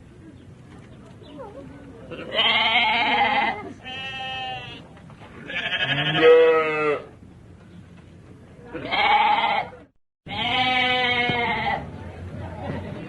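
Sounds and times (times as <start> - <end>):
animal bleat-like cries: 2.2 - 4.8, 5.4 - 7.1, 8.8 - 11.8.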